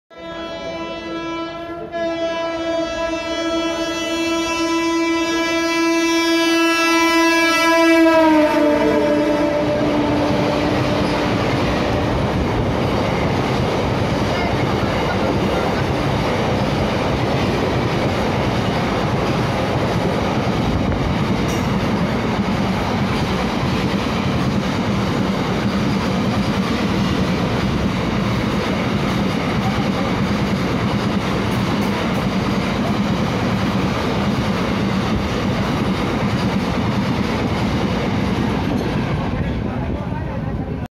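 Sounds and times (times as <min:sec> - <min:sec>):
locomotive horn: 0:00.1 - 0:12.3.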